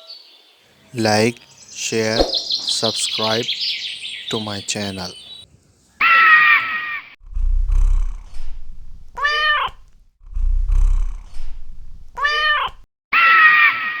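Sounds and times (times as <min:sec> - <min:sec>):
loud steady cat cry: 0:06.0 - 0:07.0, 0:09.2 - 0:09.9, 0:12.2 - 0:14.0
cat purring: 0:07.2 - 0:12.8
cat meowing: 0:09.2 - 0:09.9, 0:12.2 - 0:14.0.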